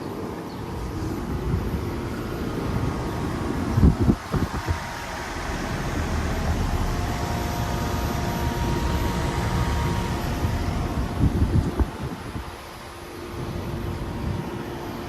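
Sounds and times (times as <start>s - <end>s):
air conditioner unit running: 0.0s - 15.0s.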